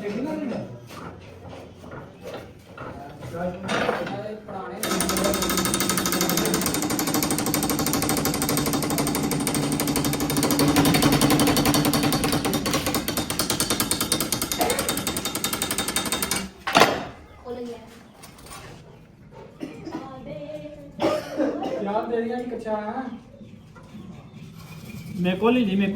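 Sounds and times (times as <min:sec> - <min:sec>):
workshop machine rattling: 0:02.8 - 0:17.3.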